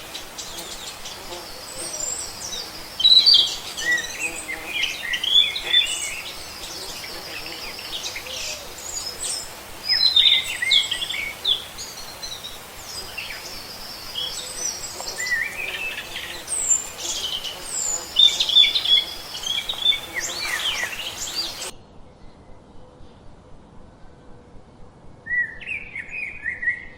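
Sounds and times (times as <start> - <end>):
small birds chirping: 0.0 - 21.8
steady hiss: 0.0 - 21.8.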